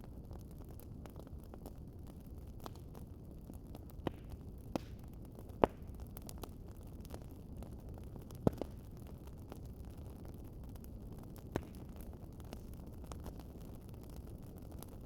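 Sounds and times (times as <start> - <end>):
wood fire crackling: 0.0 - 15.0
sharp fire pops: 3.9 - 6.5, 7.1 - 9.2, 11.2 - 15.0.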